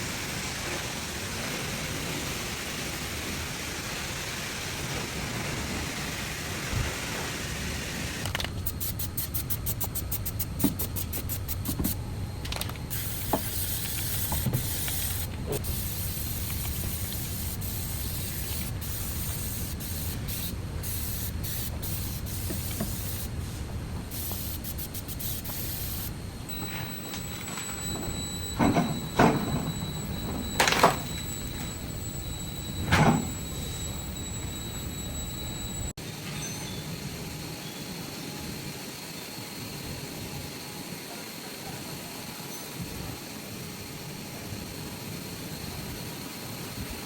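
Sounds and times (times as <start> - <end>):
hissing spray: 0.0 - 12.0, 12.9 - 26.1.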